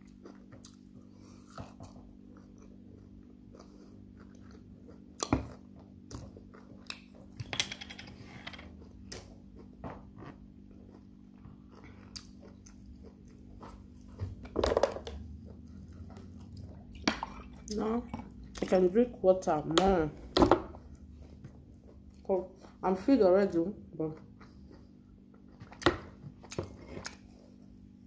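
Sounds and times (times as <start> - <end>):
chewing meat: 0.0 - 7.4, 8.7 - 14.6, 15.2 - 18.8, 20.8 - 22.8
faint steady hum: 0.0 - 28.0.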